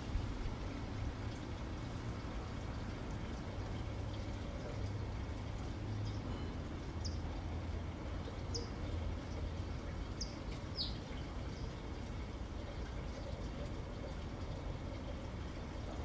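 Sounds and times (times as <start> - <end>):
small bird chirping: 10.2 - 11.0.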